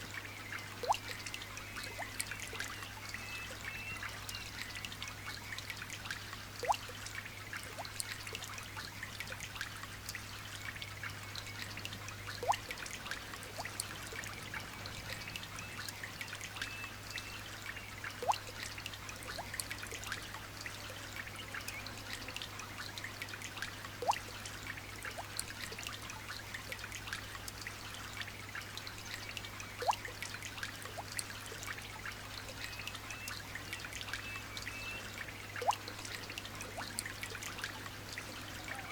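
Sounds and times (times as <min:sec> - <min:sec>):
light rain pattering: 0:00.0 - 0:38.9
drop plinking into water: 0:00.8 - 0:01.2, 0:12.4 - 0:12.8.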